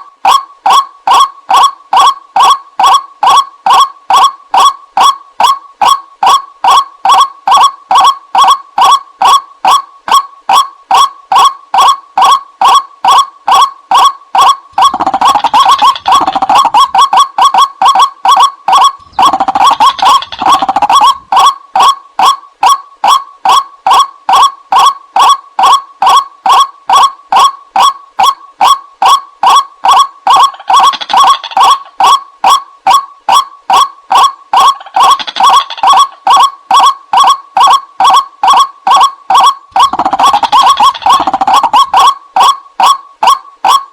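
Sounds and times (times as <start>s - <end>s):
waterhen croaking calls: 10.5s - 29.6s, 30.3s - 33.0s, 39.8s - 43.4s.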